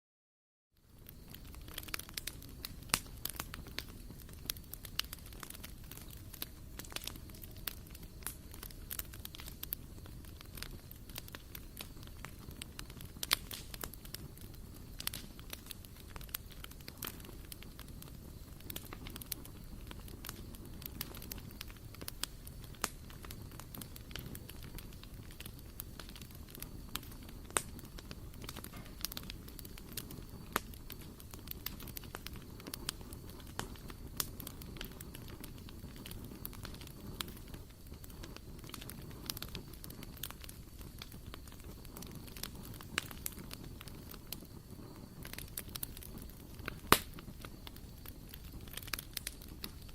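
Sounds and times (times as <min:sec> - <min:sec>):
fire crackling and popping: 0:00.7 - 0:49.9
flames rumbling: 0:00.8 - 0:49.9.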